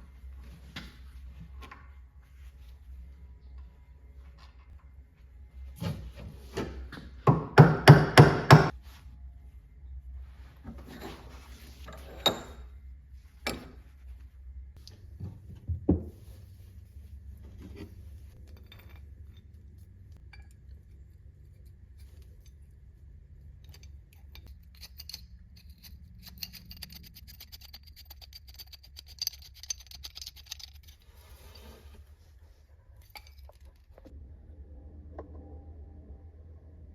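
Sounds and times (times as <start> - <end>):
low steady hum: 0.0 - 36.9
metal parts clinking: 23.6 - 31.0.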